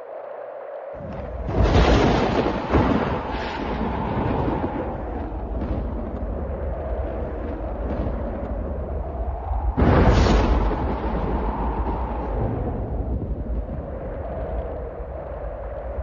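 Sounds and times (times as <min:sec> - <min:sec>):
storm wind howling: 0:00.0 - 0:16.0
thunder crack and rolling rumble: 0:01.0 - 0:16.0.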